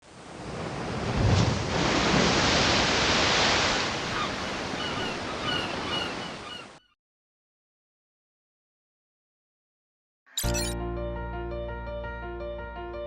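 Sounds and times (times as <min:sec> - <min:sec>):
sea waves washing: 0:00.1 - 0:06.4
short high chirps: 0:10.3 - 0:10.8.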